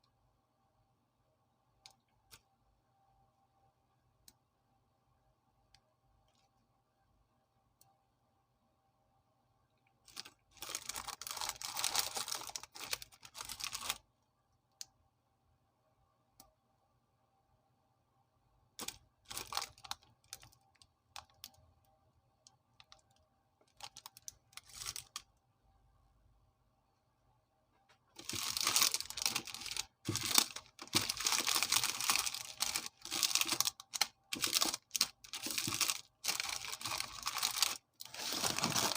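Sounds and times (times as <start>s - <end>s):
wrapper crinkling and rustling: 10.1s - 14.0s, 18.8s - 20.6s, 23.7s - 25.2s, 28.2s - 38.9s.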